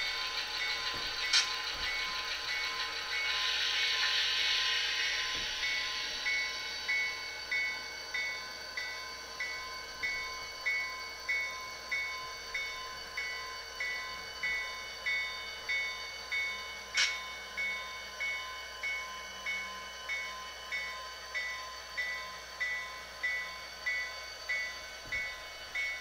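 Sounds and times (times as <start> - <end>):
hiss: 0.0 - 8.3
locomotive bell ringing: 0.0 - 26.0.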